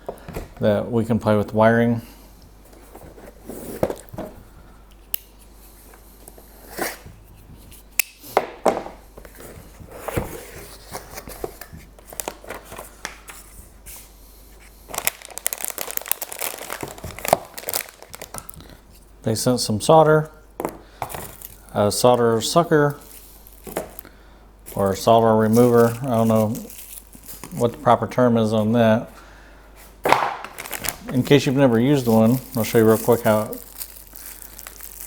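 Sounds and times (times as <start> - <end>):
plastic packaging crinkling: 12.0 - 13.0, 14.9 - 18.8, 21.0 - 24.1, 24.7 - 28.0, 30.1 - 35.0.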